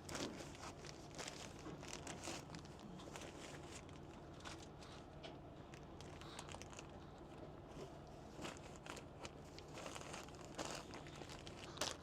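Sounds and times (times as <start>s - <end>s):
plastic packaging crinkling: 0.1s - 4.8s, 8.4s - 12.0s.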